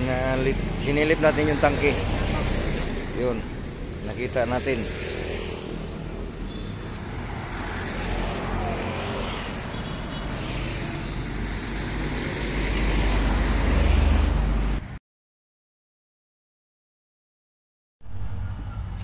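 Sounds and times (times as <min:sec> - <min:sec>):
vehicle engine humming: 0:00.0 - 0:14.9.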